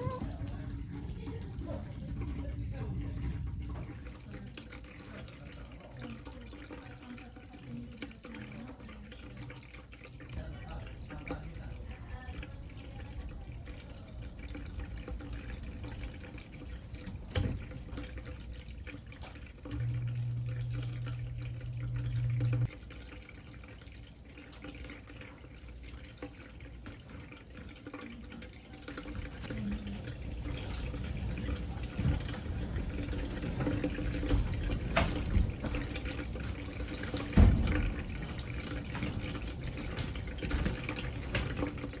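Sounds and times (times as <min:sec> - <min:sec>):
pet fountain water trickling: 0:00.0 - 0:42.0
short low hum: 0:19.7 - 0:22.7.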